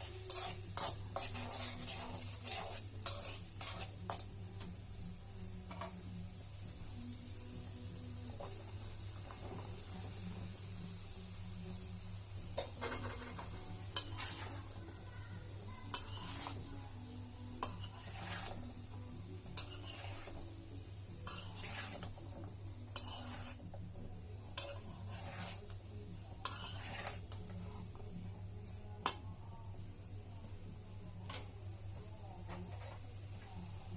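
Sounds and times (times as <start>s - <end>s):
spatula scraping a pan: 0.0s - 4.3s, 12.6s - 20.5s, 21.2s - 28.0s, 32.5s - 33.1s
food sizzling: 0.0s - 33.9s.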